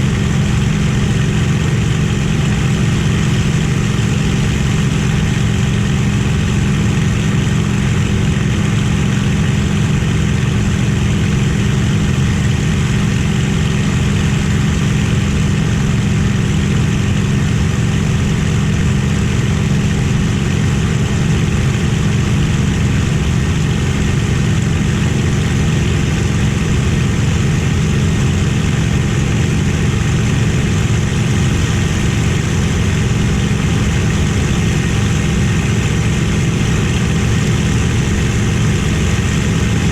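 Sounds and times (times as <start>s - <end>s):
aircraft engine droning: 0.0s - 39.9s.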